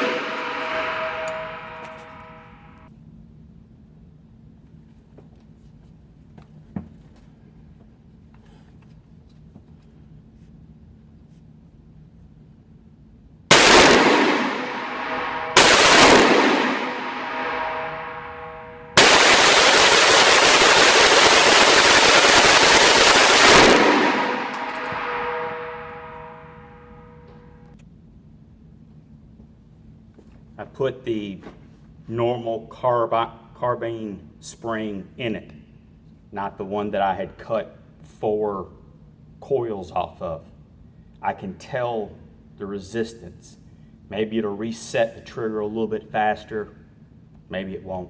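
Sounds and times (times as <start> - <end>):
gunshots: 0.0 - 2.4, 13.5 - 26.6.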